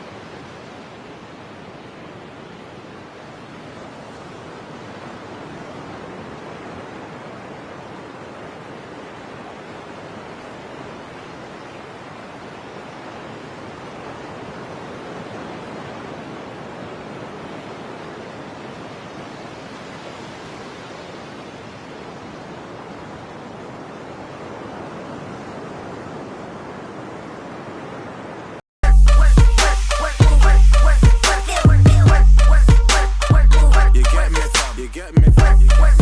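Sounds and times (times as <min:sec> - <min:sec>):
wind: 0:00.0 - 0:28.6
rushing water: 0:00.0 - 0:36.0.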